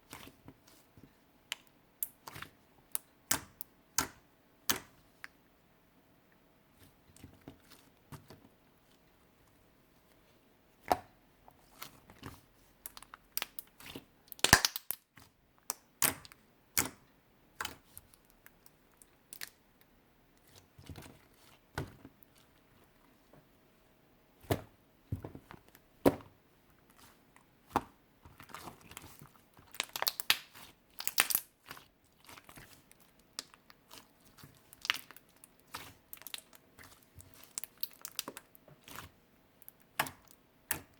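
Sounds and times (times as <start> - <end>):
sticky slime clicks and pops: 14.3 - 15.0, 29.9 - 31.5.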